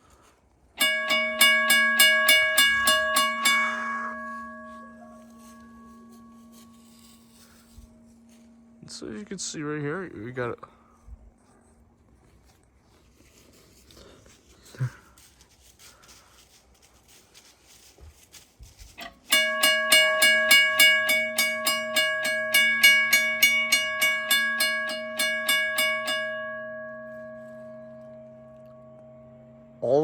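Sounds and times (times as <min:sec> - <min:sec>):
crossing signal bell ringing: 0:00.8 - 0:10.4, 0:19.0 - 0:30.0.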